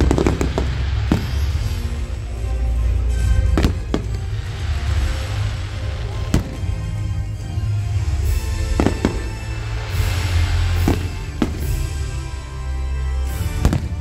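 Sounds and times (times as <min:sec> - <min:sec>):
firework shells bursting: 0:00.0 - 0:02.3, 0:08.2 - 0:14.0
fireworks hissing crackle: 0:00.0 - 0:14.0
music: 0:00.0 - 0:14.0.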